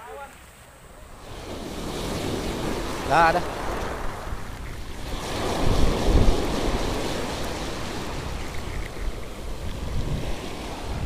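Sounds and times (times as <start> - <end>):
surf breaking and washing ashore: 0.0 - 11.0
wind rumbling on microphone: 0.4 - 11.0.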